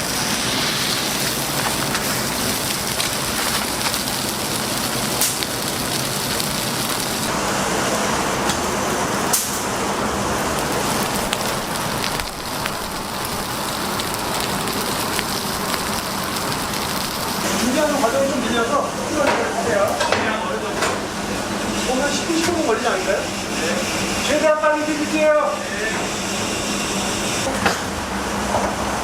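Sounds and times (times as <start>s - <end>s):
wood fire crackling and sizzling: 0.0s - 27.5s
sharp fire pops: 0.2s - 7.3s, 10.6s - 17.8s.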